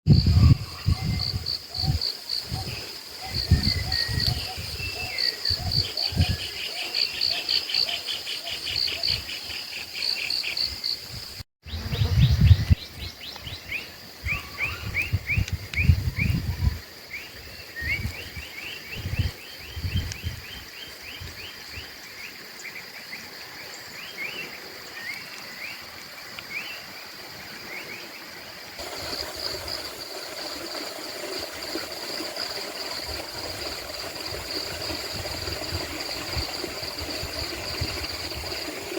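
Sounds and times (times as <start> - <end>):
insects shrilling chorus: 28.8 - 38.9.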